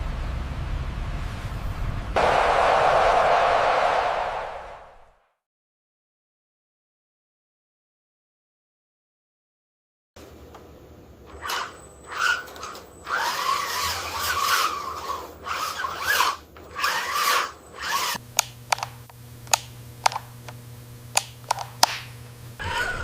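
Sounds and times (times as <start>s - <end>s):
small electric motors whirring: 11.3s - 21.9s, 22.5s - 23.0s
steady low hum: 17.6s - 23.0s
sharp clicks: 18.3s - 22.1s.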